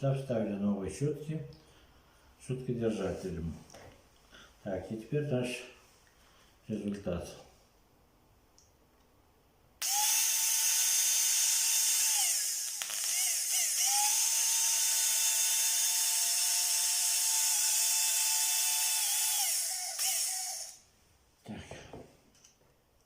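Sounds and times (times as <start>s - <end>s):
electric motor whining: 9.8s - 20.8s.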